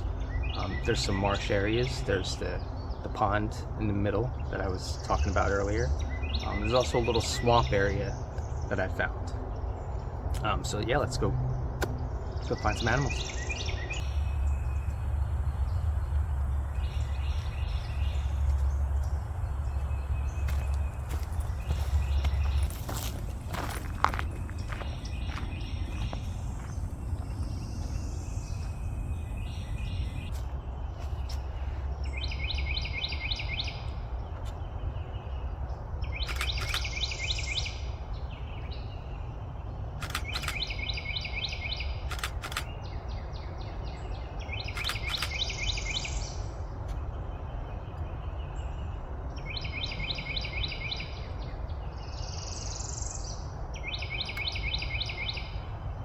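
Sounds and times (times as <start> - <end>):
steady low rumble: 0.0 - 33.2
bird chirps: 4.0 - 55.8.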